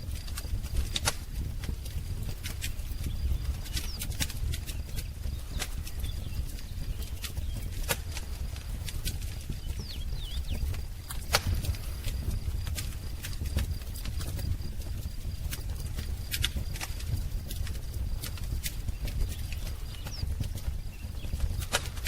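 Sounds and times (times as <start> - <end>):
wood fire crackling and popping: 0.0 - 22.0
faint bird chirps: 2.8 - 8.4, 9.3 - 12.2, 18.8 - 22.0.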